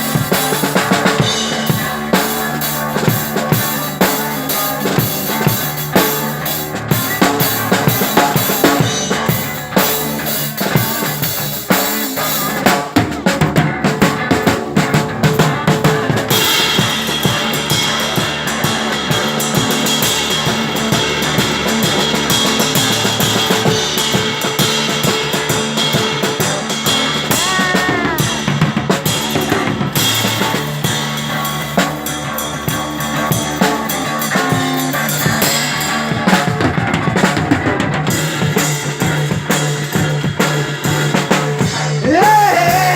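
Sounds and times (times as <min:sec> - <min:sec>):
drum kit played hard: 0:00.0 - 0:42.9
sustained electric guitar: 0:00.0 - 0:42.9
bent guitar note: 0:16.0 - 0:24.3, 0:27.2 - 0:28.8.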